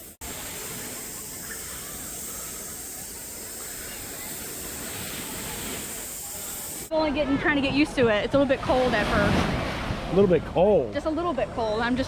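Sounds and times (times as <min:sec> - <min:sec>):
gentle surf hissing: 0:00.0 - 0:06.9.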